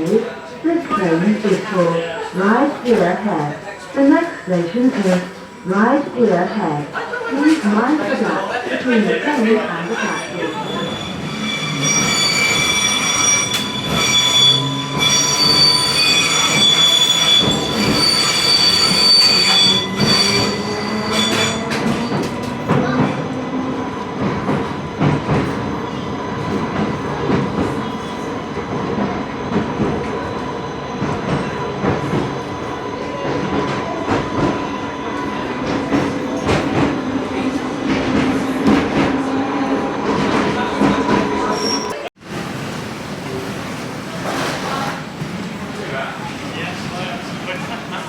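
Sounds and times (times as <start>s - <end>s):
train rumbling: 0.0s - 48.0s
rail clicks: 9.4s - 42.0s
train wheels squealing: 9.8s - 23.0s, 41.4s - 42.1s.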